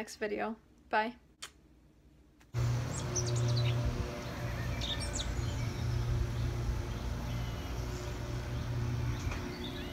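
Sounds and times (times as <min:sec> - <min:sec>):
bird chirps: 0:02.8 - 0:09.9.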